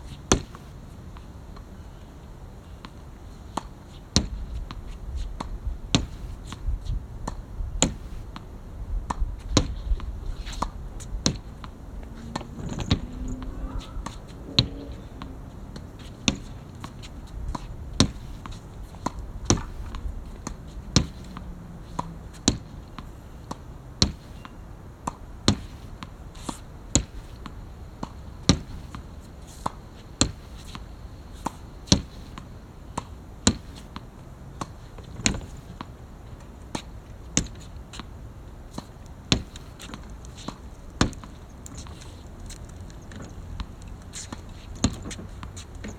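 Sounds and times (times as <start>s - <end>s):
racket striking shuttlecocks: 9.1s - 30.8s.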